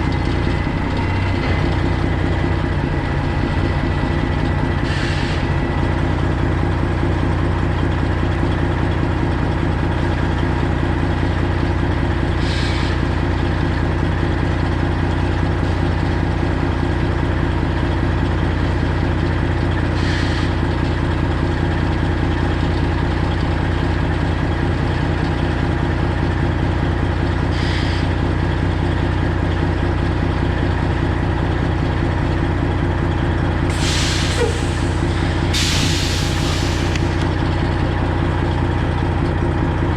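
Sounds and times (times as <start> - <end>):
semi truck engine idling: 0.0 - 39.9
air hisses: 33.7 - 37.2.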